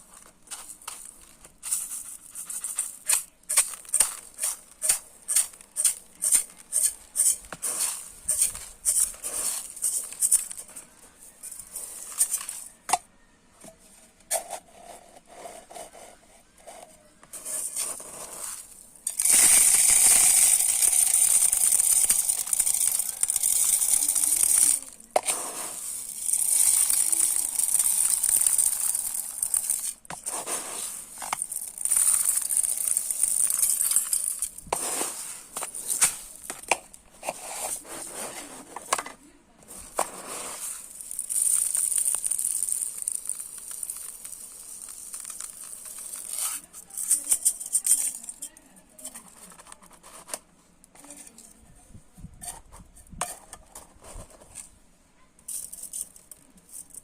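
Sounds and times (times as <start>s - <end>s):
rice grains clicking and rattling: 0.0s - 10.8s, 17.3s - 38.3s, 39.7s - 48.5s
rice pouring hiss: 17.8s - 36.5s, 40.0s - 46.4s.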